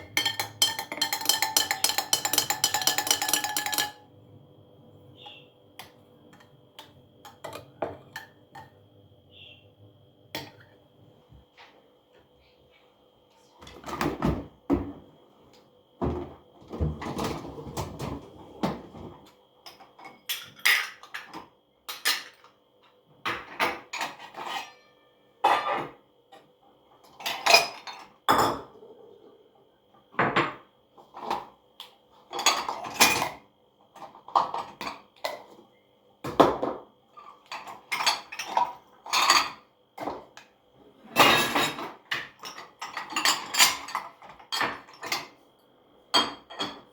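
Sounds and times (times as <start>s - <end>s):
dishes and cutlery clattering: 0.0s - 4.0s, 19.7s - 22.6s, 23.3s - 26.0s, 27.0s - 28.8s, 32.3s - 33.4s, 36.4s - 40.3s, 41.0s - 45.4s, 46.1s - 46.9s.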